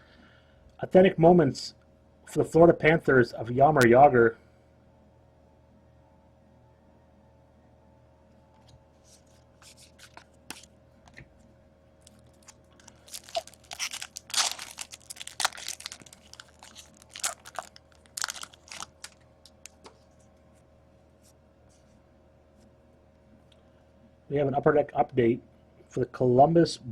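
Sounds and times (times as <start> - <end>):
foil wrapper tearing and crinkling: 9.6 - 10.7, 12.0 - 19.8.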